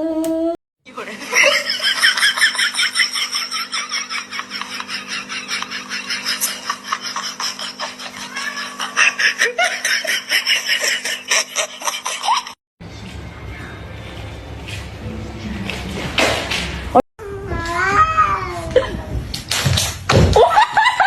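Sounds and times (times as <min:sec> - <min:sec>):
person laughing hard: 0:01.3 - 0:12.6.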